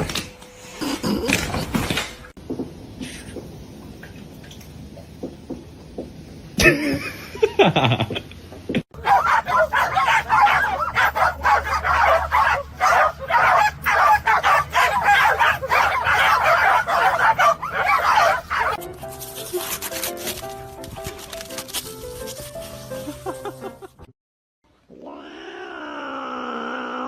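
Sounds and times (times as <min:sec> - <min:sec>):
animal calling in harsh bursts: 0:09.0 - 0:18.8
music: 0:09.0 - 0:24.1.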